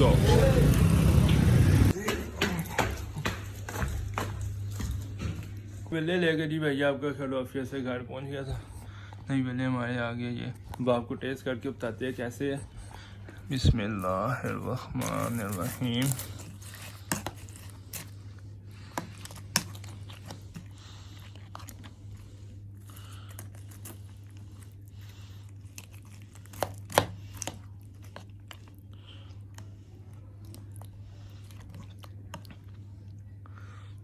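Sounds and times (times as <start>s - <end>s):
steady low hum: 0.0s - 34.0s
person chewing: 14.1s - 33.4s.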